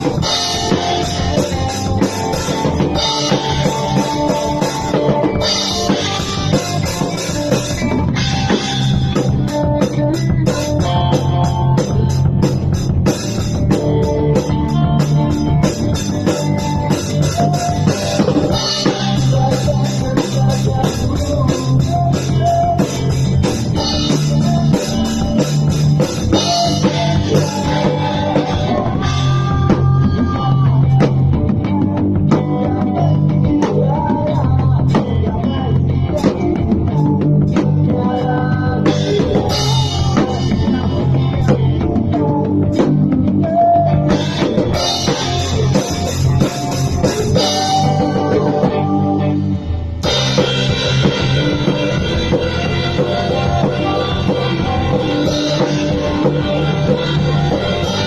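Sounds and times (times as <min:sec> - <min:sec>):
lead melody line: 0:00.0 - 0:33.5, 0:34.4 - 0:58.0
bass guitar: 0:00.0 - 0:58.0
drum kit beat: 0:00.0 - 0:58.0
electric guitar: 0:00.0 - 0:58.0.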